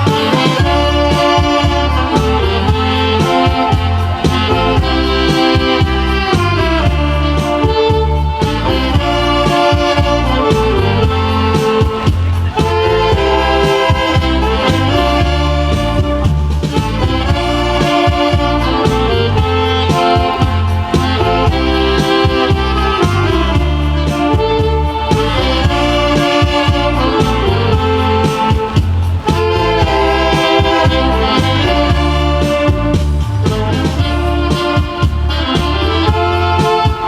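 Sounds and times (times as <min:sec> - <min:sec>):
saxophone melody: 0:00.0 - 0:37.0
steady bass line: 0:00.0 - 0:37.0.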